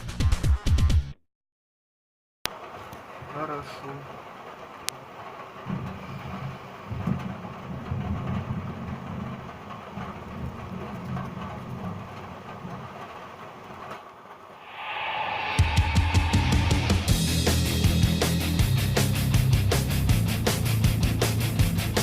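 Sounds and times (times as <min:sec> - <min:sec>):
music: 0:00.0 - 0:01.2, 0:15.1 - 0:22.0
distant thunder rumbling: 0:04.0 - 0:13.8.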